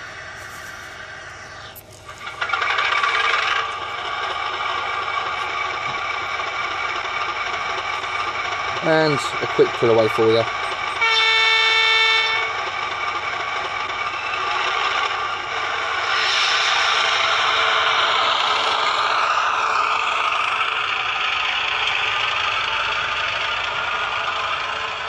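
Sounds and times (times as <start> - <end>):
diesel engine sound: 0.0 - 25.0
air horn blast through small speaker: 11.0 - 12.5.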